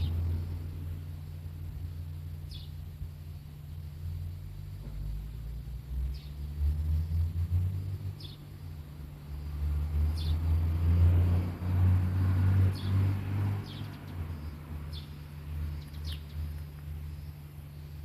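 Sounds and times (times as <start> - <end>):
steady low rumble: 0.0 - 10.8
small birds chirping: 0.0 - 11.2, 12.6 - 18.0.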